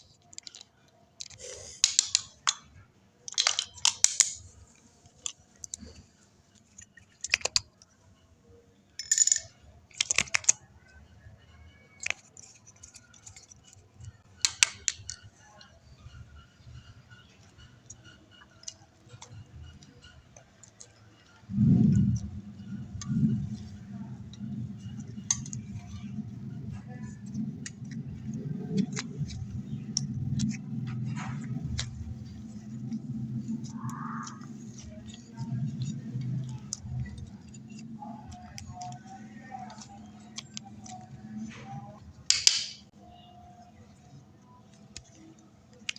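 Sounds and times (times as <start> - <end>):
makeup containers clicking: 0.2 - 2.7, 3.3 - 4.5, 14.4 - 15.3, 42.3 - 42.9
slime sticky clicks and pops: 1.2 - 2.6, 42.3 - 42.8
slime squelch: 16.7 - 45.9.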